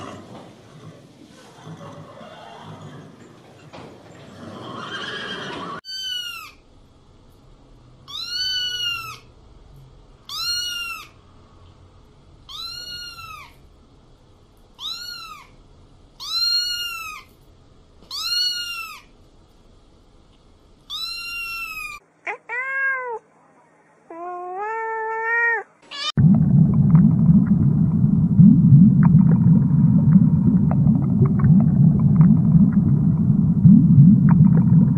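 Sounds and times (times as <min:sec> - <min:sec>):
kitten meowing: 0:12.5 - 0:13.5, 0:20.9 - 0:23.2.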